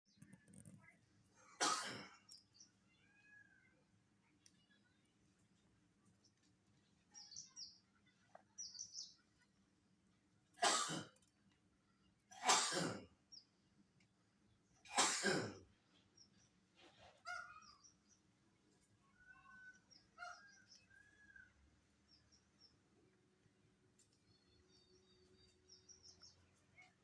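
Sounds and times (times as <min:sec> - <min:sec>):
small birds chirping: 0:00.1 - 0:09.6, 0:13.2 - 0:13.8, 0:15.7 - 0:27.0.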